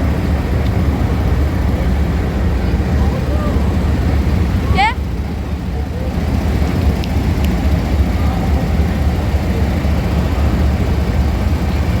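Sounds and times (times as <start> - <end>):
diesel locomotive engine rumble: 0.0 - 12.0
faint clicks: 6.8 - 7.6.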